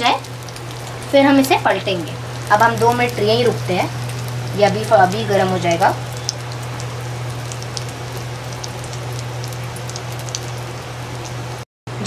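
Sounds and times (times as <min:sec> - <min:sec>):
bread frying in hot oil: 0:00.0 - 0:12.0
low hum: 0:00.0 - 0:12.0.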